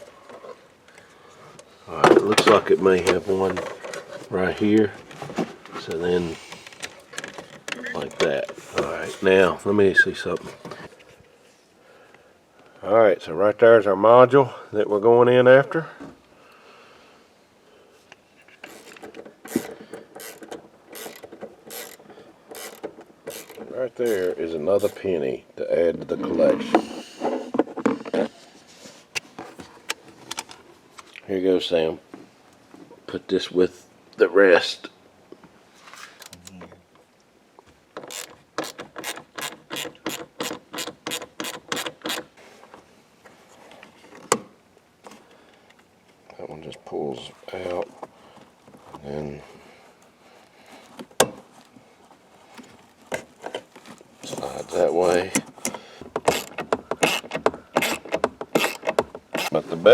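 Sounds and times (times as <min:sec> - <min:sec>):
ratchet wrench clicking: 0:18.6 - 0:25.0, 0:38.0 - 0:42.3, 0:56.2 - 0:59.6.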